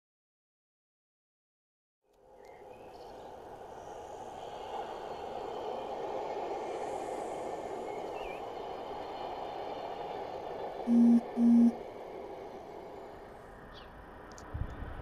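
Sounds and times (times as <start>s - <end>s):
train passing rumble: 2.2s - 15.0s
short electronic beeps: 10.9s - 11.7s.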